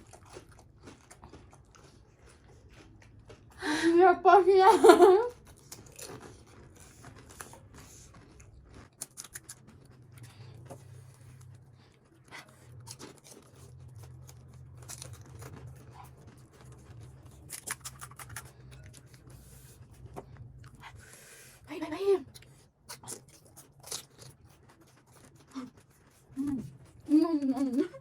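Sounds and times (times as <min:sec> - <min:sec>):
crunching crisp food: 0:00.0 - 0:03.6, 0:05.3 - 0:20.9, 0:22.3 - 0:28.0
low steady hum: 0:09.7 - 0:22.6.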